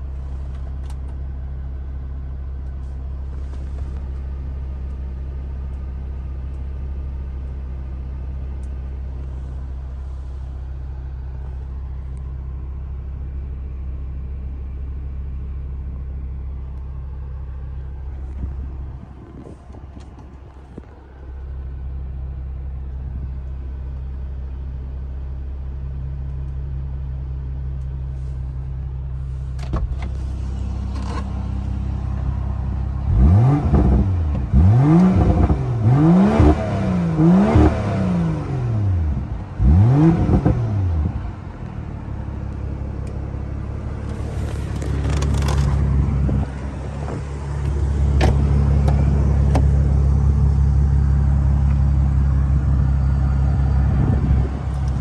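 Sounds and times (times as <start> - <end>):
car engine starting and idling: 0.0 - 55.0
engine revving: 29.9 - 41.3, 43.0 - 55.0.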